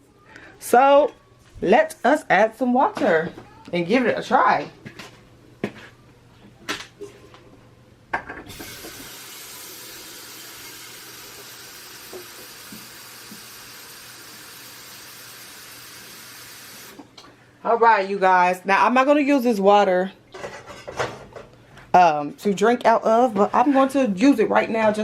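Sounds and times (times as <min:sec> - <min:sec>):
tap water filling a kettle: 0:08.2 - 0:17.1.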